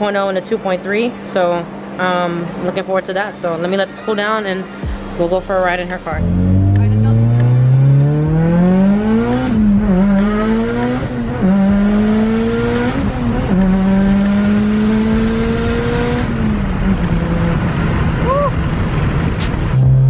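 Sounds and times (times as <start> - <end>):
car engine accelerating: 1.7 - 20.0.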